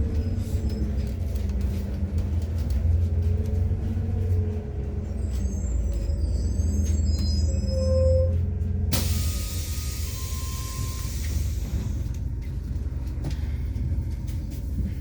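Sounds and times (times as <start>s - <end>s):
bus engine drone: 0.0s - 15.0s
road rumble: 0.0s - 15.0s
high-pitched squeaks: 5.0s - 8.4s.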